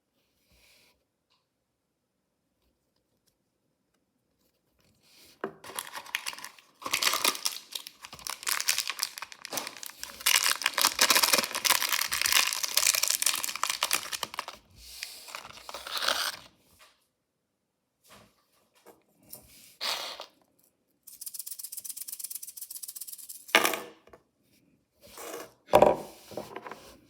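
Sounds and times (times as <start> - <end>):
plastic wrapper tearing and crinkling: 5.6 - 16.5.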